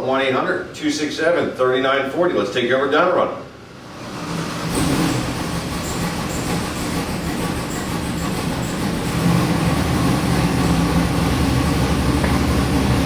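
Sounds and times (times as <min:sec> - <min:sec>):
engine droning on dyno: 0:03.4 - 0:13.0.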